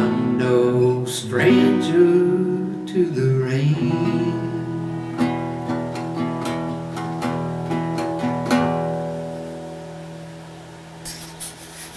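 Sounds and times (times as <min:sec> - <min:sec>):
acoustic guitar strum ringing: 0:00.0 - 0:11.4
acoustic guitar picked notes: 0:00.0 - 0:11.9.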